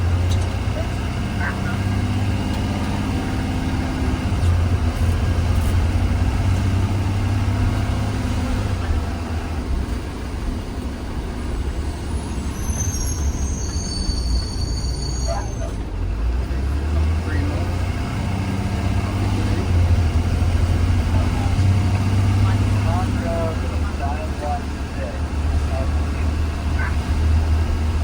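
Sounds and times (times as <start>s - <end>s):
bus engine and road noise: 0.0s - 28.0s
high-pitched squeal: 12.1s - 15.8s.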